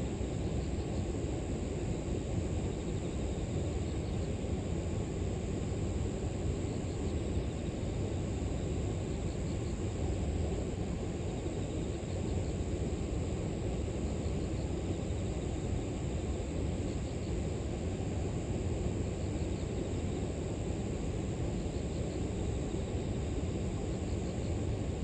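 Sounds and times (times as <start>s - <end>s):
crickets trilling: 0.0s - 25.0s.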